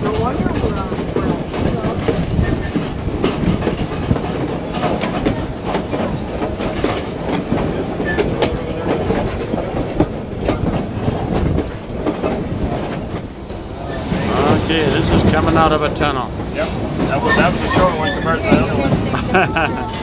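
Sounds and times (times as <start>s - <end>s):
wheels clicking and clacking: 0.0s - 13.4s
train wheels rumbling on rail: 0.0s - 20.0s.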